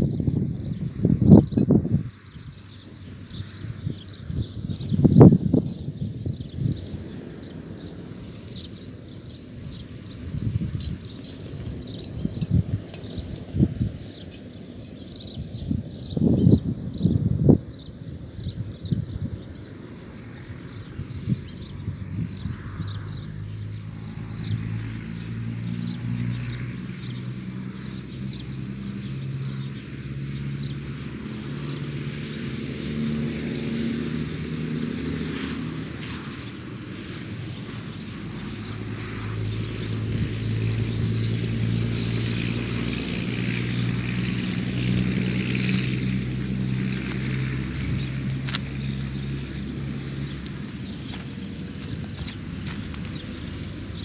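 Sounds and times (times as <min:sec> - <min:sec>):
engine running: 0:36.6 - 0:54.0.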